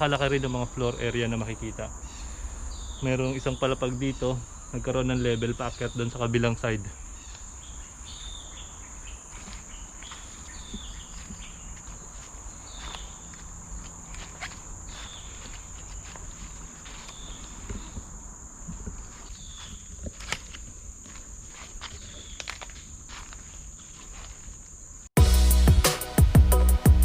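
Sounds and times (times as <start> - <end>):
footsteps on trail: 8.1 - 24.8.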